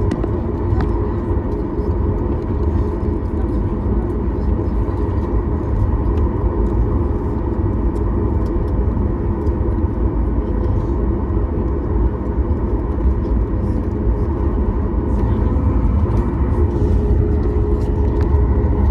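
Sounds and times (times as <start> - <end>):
airliner cabin roar: 0.0 - 18.9.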